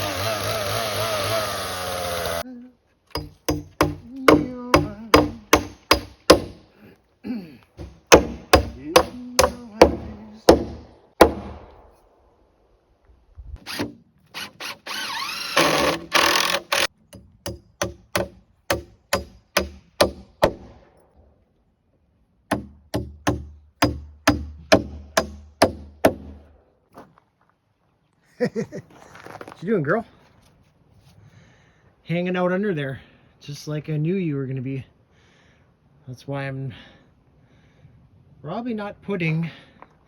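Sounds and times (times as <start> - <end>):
hammer driving nails into wood: 3.1 - 6.6, 7.8 - 11.8, 15.6 - 20.8, 22.5 - 26.5.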